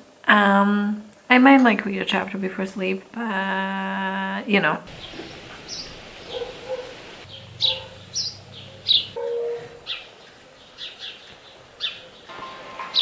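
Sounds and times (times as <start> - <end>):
small birds chirping: 4.9 - 12.3.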